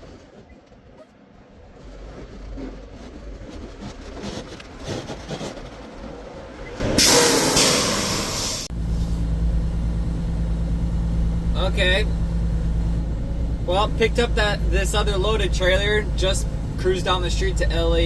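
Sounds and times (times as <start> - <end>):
truck rumble and rattle: 0.3 - 18.0
low diesel engine hum: 6.7 - 18.0
air brake hiss: 6.8 - 9.2.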